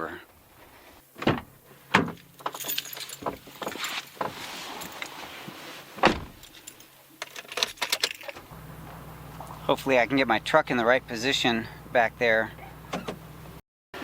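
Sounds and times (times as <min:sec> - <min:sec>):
truck door shutting thump: 0:01.2 - 0:02.2, 0:06.0 - 0:06.4, 0:12.9 - 0:13.2.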